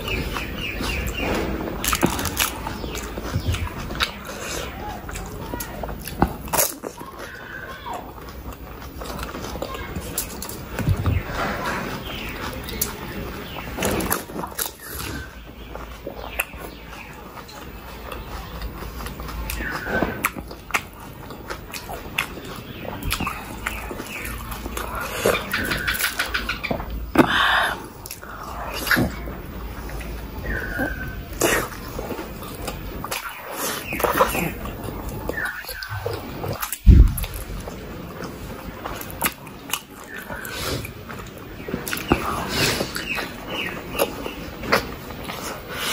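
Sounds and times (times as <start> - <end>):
chewing with crunches: 0.0 - 45.9
loud low thump: 36.8 - 37.6.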